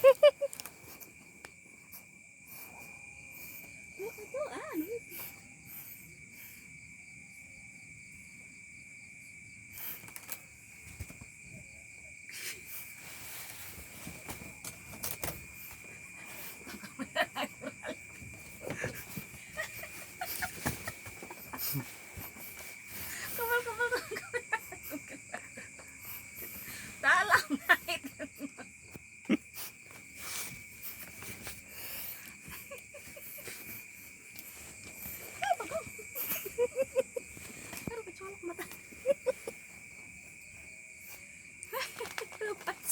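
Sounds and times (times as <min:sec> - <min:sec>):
crickets chirring: 0:00.0 - 0:42.9
insects trilling: 0:00.0 - 0:42.9
light rustles and scuffs: 0:12.3 - 0:24.2, 0:29.6 - 0:42.9.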